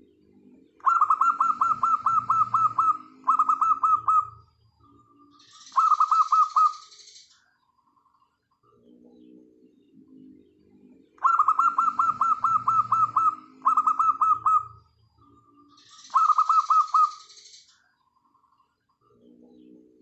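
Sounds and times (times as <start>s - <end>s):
dove cooing: 0.8s - 4.6s, 5.5s - 6.9s, 11.2s - 17.3s.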